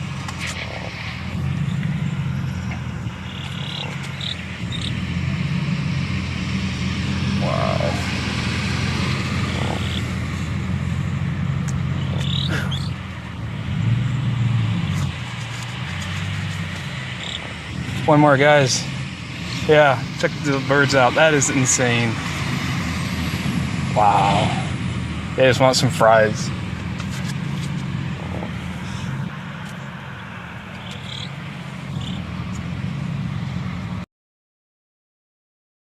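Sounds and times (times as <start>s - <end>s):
birds chirping: 0.0s - 23.3s, 24.0s - 32.8s
car engine idling: 0.0s - 34.0s
short high bird calls: 12.0s - 13.0s.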